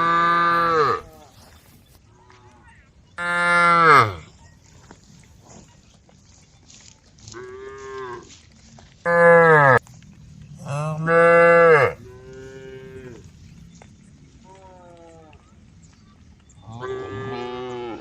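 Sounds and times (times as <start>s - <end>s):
cows mooing: 0.0s - 1.4s, 3.2s - 4.3s, 9.1s - 13.6s, 16.7s - 18.0s.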